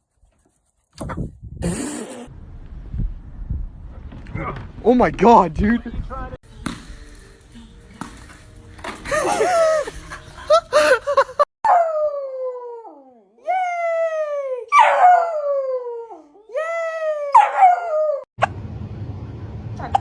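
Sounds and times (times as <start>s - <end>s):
dog crying: 11.7s - 18.3s.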